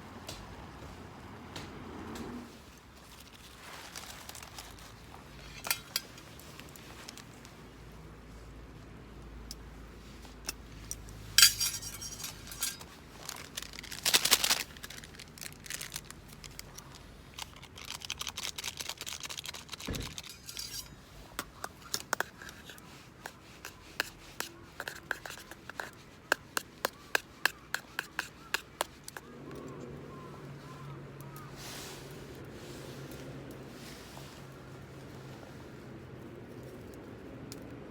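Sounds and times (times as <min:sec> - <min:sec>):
camp gear clinking and knocking: 0:04.0 - 0:07.3, 0:10.4 - 0:15.8, 0:19.8 - 0:22.6.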